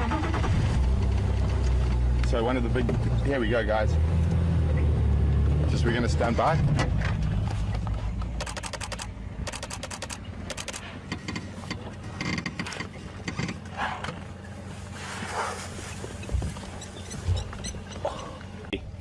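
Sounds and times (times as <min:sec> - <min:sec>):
sharp mechanical clicks: 0:08.4 - 0:11.4.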